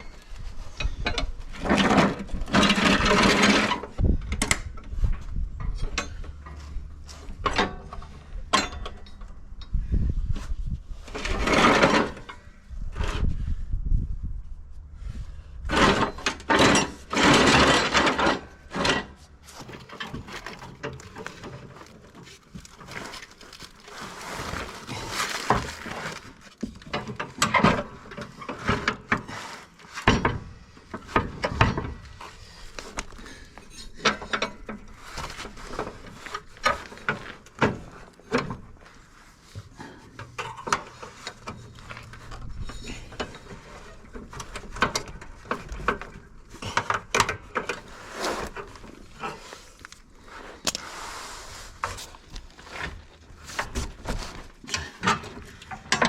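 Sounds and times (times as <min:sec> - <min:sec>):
hand tools clicking and knocking: 0:53.4 - 0:56.0.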